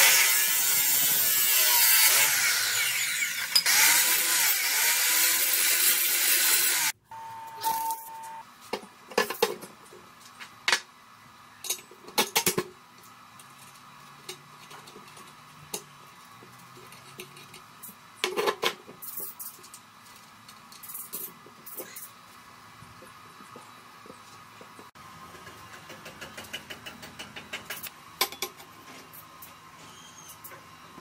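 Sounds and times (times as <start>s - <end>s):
power tool running: 0.0s - 7.0s
steady beep-like tone: 7.1s - 8.4s.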